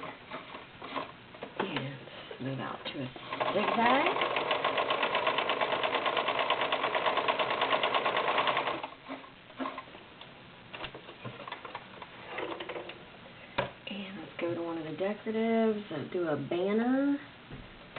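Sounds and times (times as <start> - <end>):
sewing machine stitching: 3.2 - 9.9.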